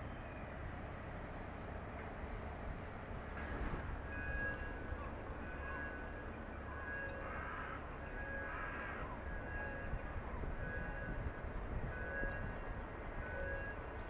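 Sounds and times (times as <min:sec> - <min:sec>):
low harbour rumble: 0:00.0 - 0:14.0
harsh caws: 0:07.2 - 0:07.8, 0:08.4 - 0:09.1.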